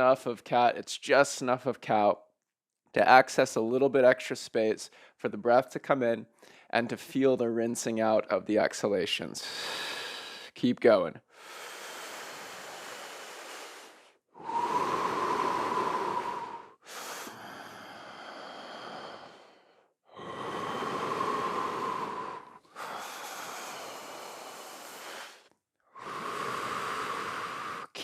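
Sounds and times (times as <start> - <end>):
slow deep human breathing: 9.4 - 10.6, 11.3 - 28.0.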